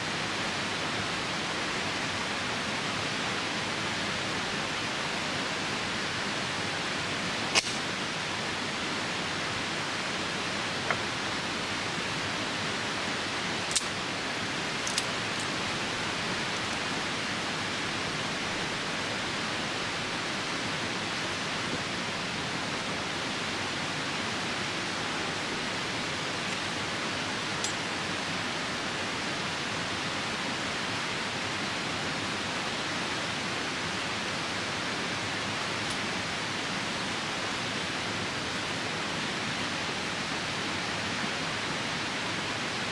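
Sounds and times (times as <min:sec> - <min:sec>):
rain: 0:00.0 - 0:42.9
river rushing: 0:00.0 - 0:42.9
campfire wood popping: 0:07.5 - 0:07.9.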